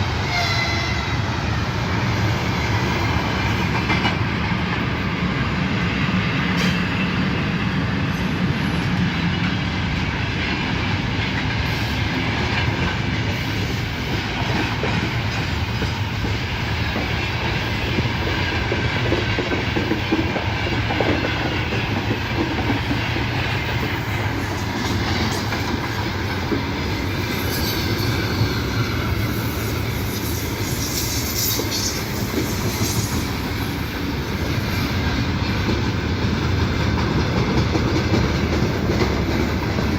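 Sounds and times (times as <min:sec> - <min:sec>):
train wheels clattering over rails: 0:00.0 - 0:39.9.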